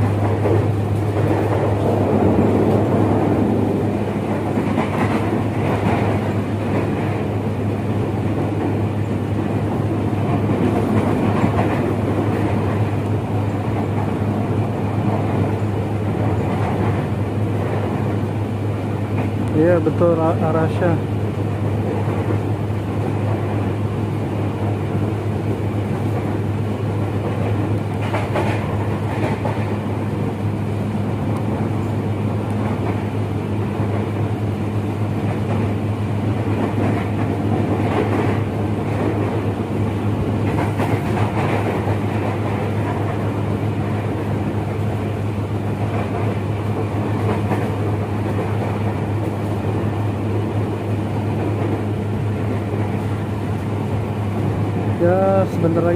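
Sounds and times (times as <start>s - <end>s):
train wheels knocking on rails: 0.0s - 7.4s, 8.0s - 18.2s, 27.0s - 30.2s, 35.1s - 53.0s
electric train running hum: 0.0s - 55.9s.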